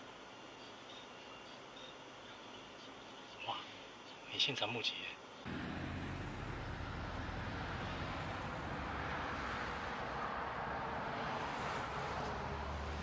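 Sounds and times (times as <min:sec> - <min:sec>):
car engine hum: 0:05.5 - 0:13.0
tyre and road rumble: 0:05.5 - 0:13.0.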